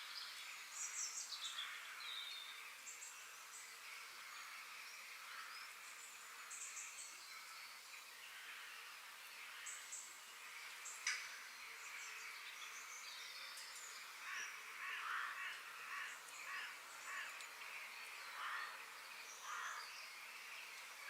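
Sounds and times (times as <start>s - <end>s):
harsh bird calls: 14.0s - 17.4s, 18.3s - 20.1s.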